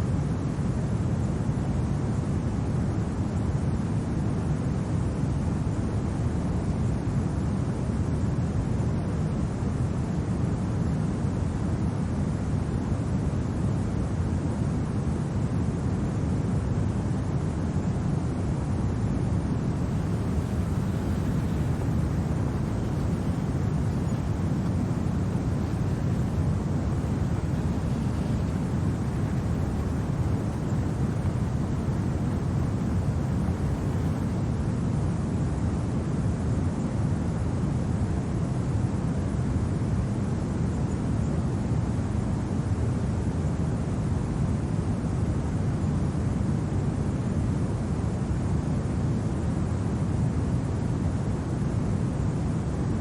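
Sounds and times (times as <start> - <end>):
low rumbling storm wind: 19.4 - 35.0.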